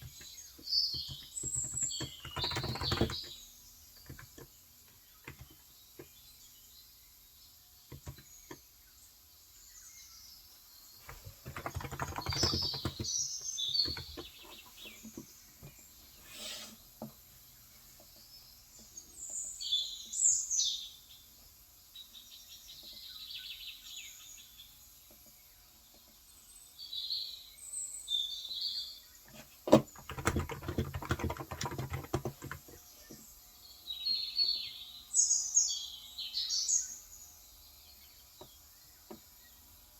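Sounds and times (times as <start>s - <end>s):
small birds chirping: 0.0s - 39.9s
typing on a keyboard: 0.9s - 3.4s, 4.0s - 4.5s, 7.9s - 8.3s, 11.0s - 13.2s, 13.8s - 14.3s, 29.7s - 32.8s.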